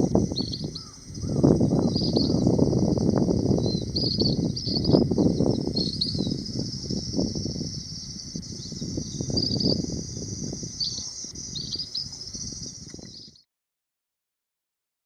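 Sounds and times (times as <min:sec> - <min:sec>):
bird high trilled calls: 0:00.0 - 0:13.4.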